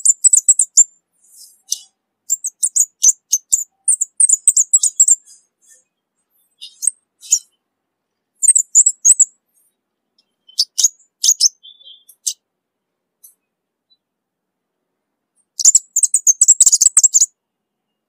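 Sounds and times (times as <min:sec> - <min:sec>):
bird high thin chirps: 0:00.0 - 0:07.6, 0:08.4 - 0:12.4, 0:15.4 - 0:17.3.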